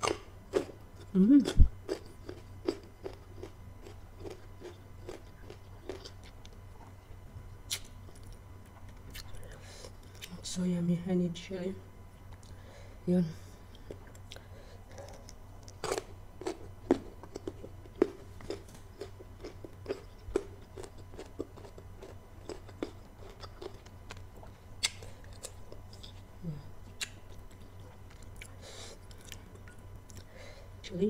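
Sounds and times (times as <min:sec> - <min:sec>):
crunchy chewing: 0:00.0 - 0:07.0, 0:13.7 - 0:30.4.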